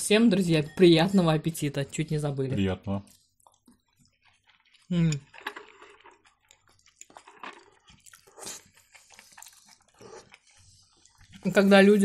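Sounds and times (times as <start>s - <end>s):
chewing and mouth smacks: 3.1s - 11.8s.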